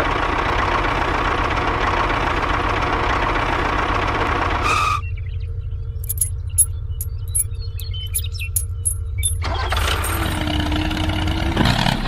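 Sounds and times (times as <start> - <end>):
low hum: 5.0 - 10.9.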